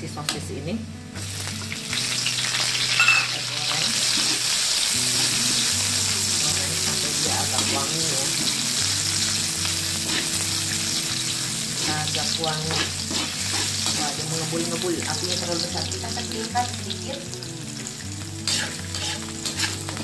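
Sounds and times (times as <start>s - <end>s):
sausage and garlic sizzling in oil: 0.1s - 20.0s
metal spatula scraping a wok: 4.0s - 5.6s, 6.8s - 14.6s, 18.4s - 20.0s.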